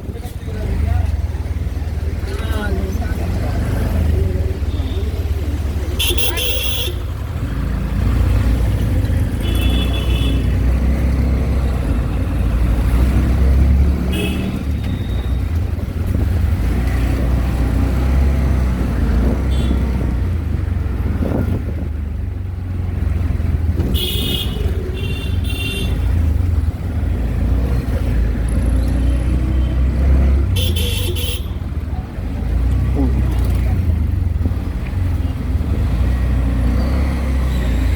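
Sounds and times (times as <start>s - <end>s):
engine and road rumble: 0.0s - 37.9s
vehicle horns honking: 6.0s - 7.2s, 9.4s - 10.6s, 14.1s - 15.4s, 19.5s - 19.9s, 23.8s - 26.1s, 30.5s - 31.6s.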